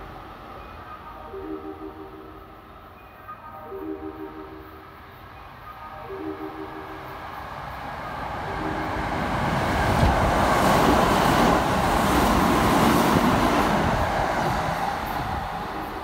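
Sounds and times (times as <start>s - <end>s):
train wheel and track noise: 0.0s - 16.0s.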